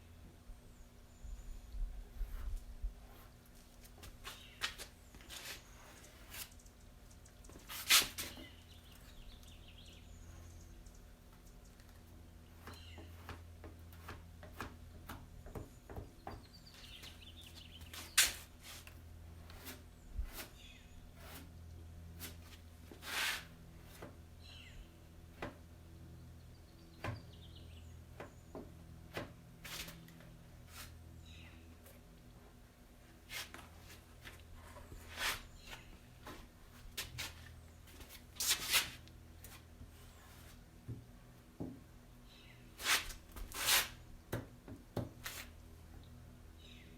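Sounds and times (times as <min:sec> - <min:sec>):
filler scraping on metal: 0:18.0 - 0:21.6.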